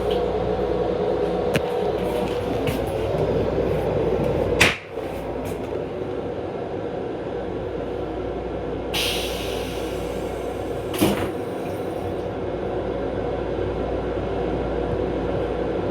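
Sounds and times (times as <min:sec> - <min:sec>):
railcar rumble: 0:00.0 - 0:15.9.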